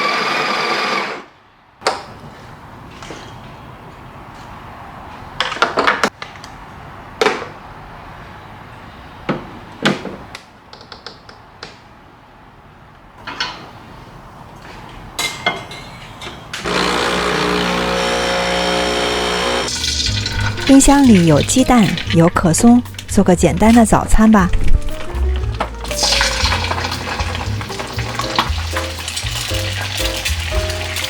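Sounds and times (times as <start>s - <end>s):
kitchen items clattering: 14.8s - 16.7s, 19.7s - 31.0s
kitchen tap running: 16.6s - 31.0s.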